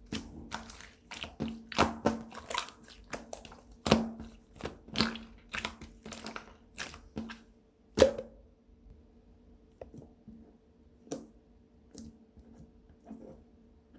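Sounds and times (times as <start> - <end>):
slime squishing and popping: 0.0 - 7.4.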